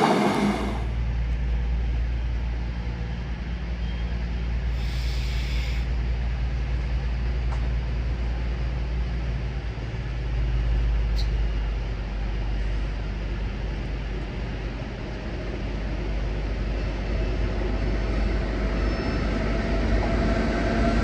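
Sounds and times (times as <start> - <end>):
train engine rumble: 0.0 - 21.0
air hiss: 4.8 - 5.9.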